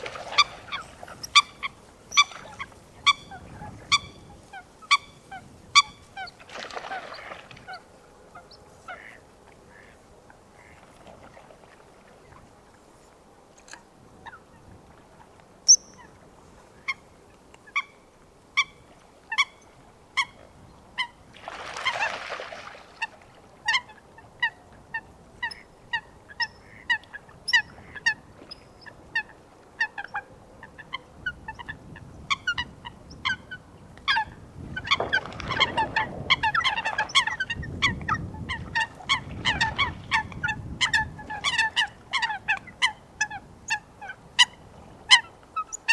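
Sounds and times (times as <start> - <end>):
coots calling: 0.0 - 5.1.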